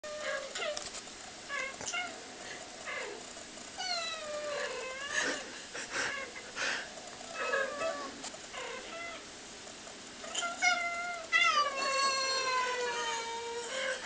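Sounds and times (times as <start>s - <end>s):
cat meowing: 10.3s - 14.0s.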